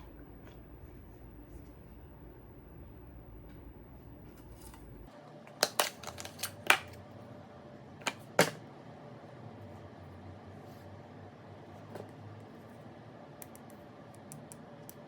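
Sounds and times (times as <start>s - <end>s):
low hum: 0.0s - 5.1s.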